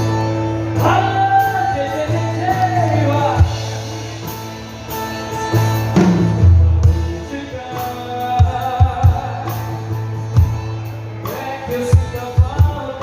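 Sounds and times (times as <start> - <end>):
band playing: 0.0 - 13.0
person singing: 6.8 - 10.1.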